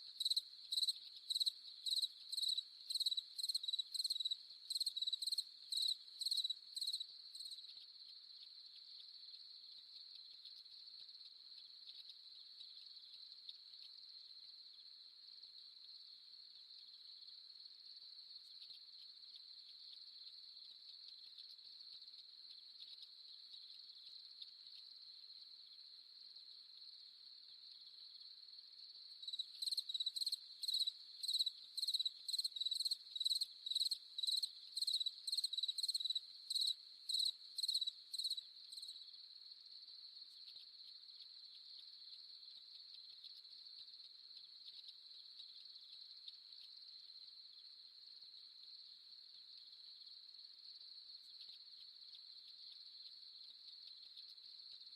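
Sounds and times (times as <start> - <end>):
insect chirping: 0.0 - 54.9
crickets trilling: 29.0 - 39.2.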